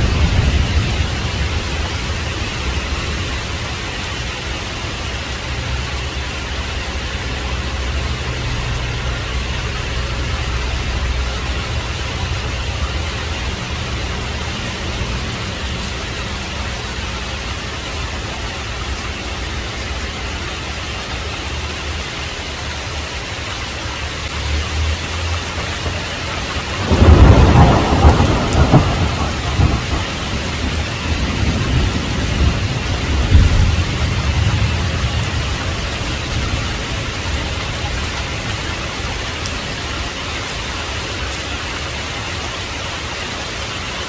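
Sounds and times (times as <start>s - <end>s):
loud thunderclap: 0.0s - 2.9s, 25.8s - 37.1s
low thunder rumbling: 0.0s - 5.7s, 25.4s - 40.0s
heavy rain falling: 0.0s - 44.0s.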